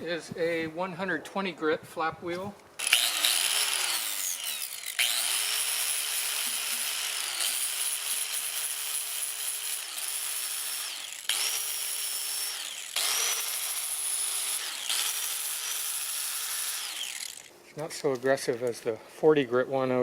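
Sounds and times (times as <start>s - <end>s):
angle grinder motor whine: 2.8s - 17.5s.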